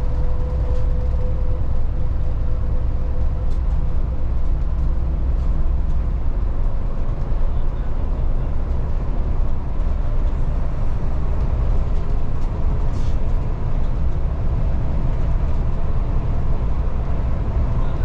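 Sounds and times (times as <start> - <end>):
bus engine rumble: 0.0 - 18.0
road noise: 0.0 - 18.0.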